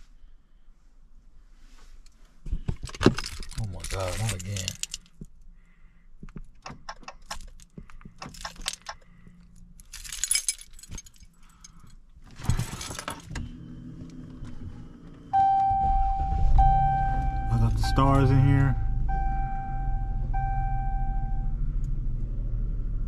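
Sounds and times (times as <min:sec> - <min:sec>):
keys jangling and clicking: 0:02.9 - 0:05.2, 0:06.6 - 0:12.0
car engine starting and idling: 0:06.4 - 0:11.0, 0:11.6 - 0:23.0.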